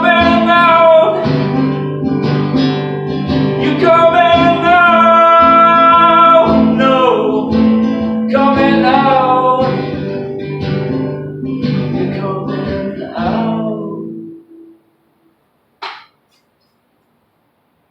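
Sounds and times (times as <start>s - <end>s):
person singing: 0.0s - 1.6s, 3.6s - 7.6s, 8.3s - 10.4s, 11.5s - 14.5s
strummed acoustic guitar: 0.0s - 14.8s.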